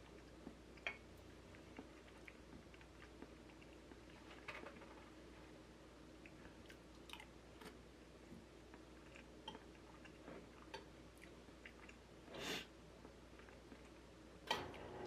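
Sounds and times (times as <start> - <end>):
chewing and mouth clicks: 0.0 - 4.5, 6.2 - 7.8, 8.7 - 12.0, 13.0 - 14.1
furnace low hum: 0.0 - 15.0.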